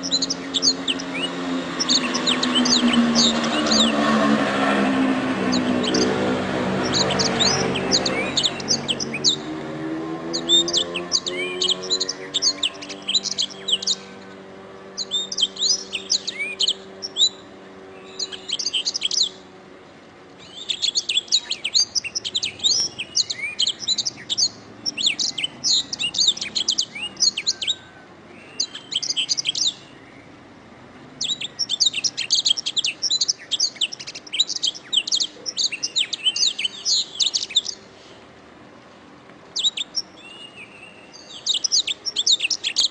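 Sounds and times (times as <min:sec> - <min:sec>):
canary trilling: 0:00.0 - 0:09.6, 0:10.2 - 0:19.5, 0:20.4 - 0:30.0, 0:31.1 - 0:37.8, 0:39.5 - 0:42.9
low hum: 0:00.0 - 0:20.7.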